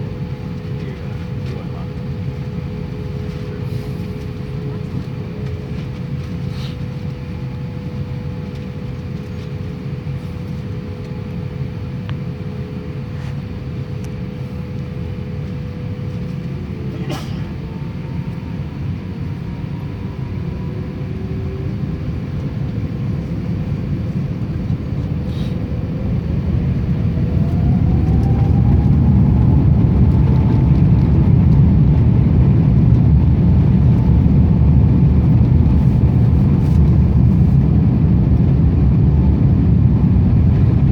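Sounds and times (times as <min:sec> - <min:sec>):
rising engine whine: 0:00.0 - 0:40.9
jet engines spooling up: 0:20.2 - 0:40.8.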